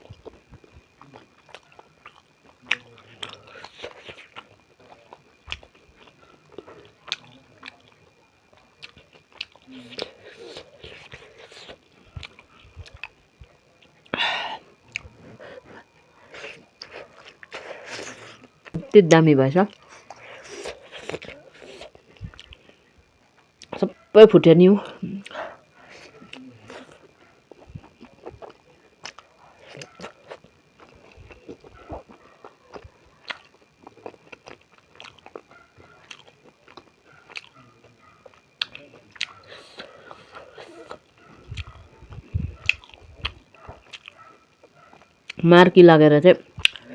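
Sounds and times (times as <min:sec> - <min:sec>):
person chewing with wet smacking: 0:00.0 - 0:14.2, 0:14.8 - 0:18.8, 0:19.7 - 0:23.9, 0:24.8 - 0:45.4, 0:46.5 - 0:46.9.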